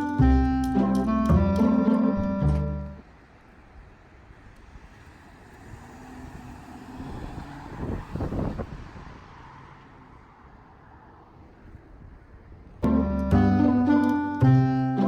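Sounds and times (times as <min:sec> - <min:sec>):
road vehicle passing by: 0:04.6 - 0:15.0.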